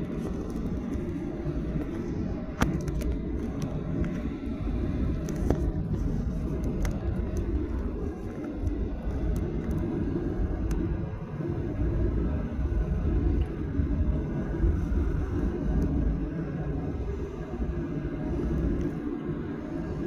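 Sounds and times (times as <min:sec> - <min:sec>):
faint ticks and rattles: 0:00.0 - 0:11.0
airliner cabin rumble: 0:00.0 - 0:20.0.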